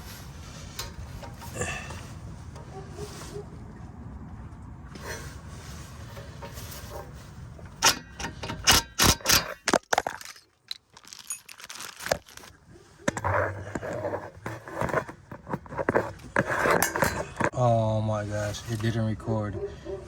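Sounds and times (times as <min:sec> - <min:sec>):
metallic clinking and rattling: 0:00.0 - 0:02.8, 0:05.0 - 0:12.5.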